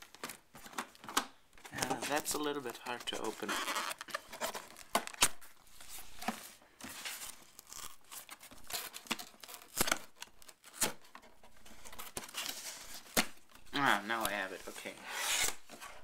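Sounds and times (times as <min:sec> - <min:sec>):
cardboard box scraping and tearing: 0:13.8 - 0:16.0.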